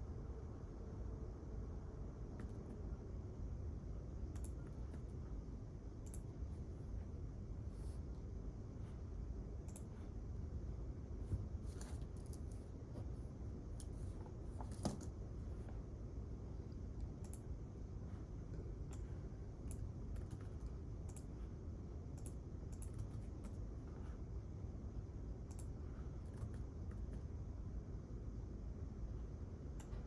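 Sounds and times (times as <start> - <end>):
low room hum: 0.0 - 30.0
keyboard clicks: 4.3 - 5.0, 6.0 - 6.3, 22.2 - 23.6, 25.5 - 25.7.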